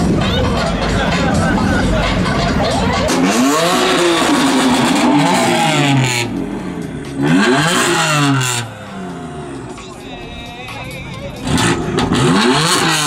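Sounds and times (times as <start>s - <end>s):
car engine revving hard: 1.2s - 9.8s, 11.4s - 13.0s.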